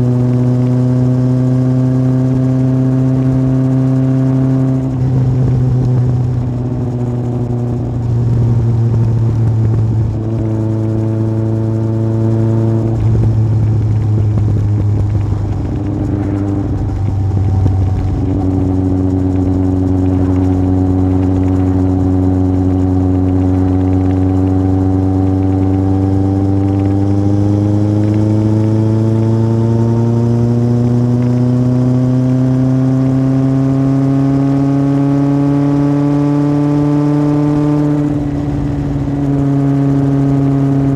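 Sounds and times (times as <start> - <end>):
motorcycle engine riding: 0.0 - 40.9.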